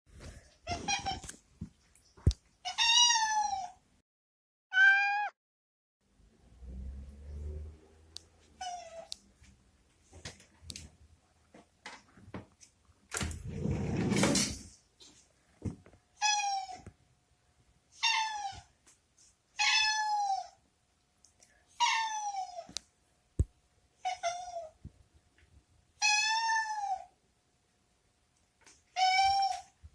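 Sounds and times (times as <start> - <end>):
cat meowing: 2.7 - 3.8, 4.7 - 5.4, 19.6 - 20.5, 21.8 - 22.7, 26.0 - 27.1, 29.0 - 29.7.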